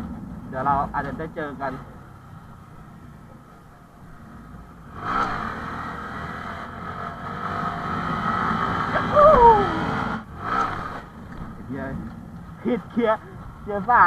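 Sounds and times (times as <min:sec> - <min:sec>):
minibike engine revving high: 0:04.8 - 0:11.2.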